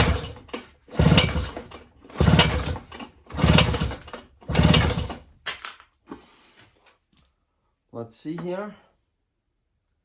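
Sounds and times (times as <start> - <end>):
outboard engine pull-start cranking: 0.0 - 5.3.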